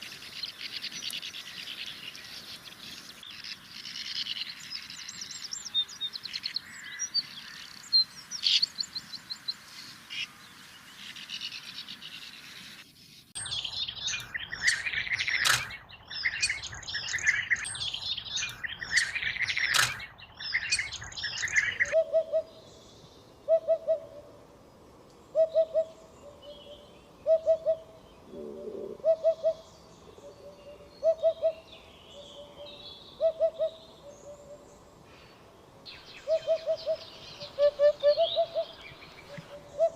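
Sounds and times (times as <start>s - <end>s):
bee-eaters rolling calls: 0.0s - 9.5s, 13.4s - 22.5s, 35.9s - 39.9s
sand martins twittering: 0.0s - 22.0s
hoopoe low calls: 23.4s - 24.4s, 25.3s - 35.2s, 36.2s - 39.9s.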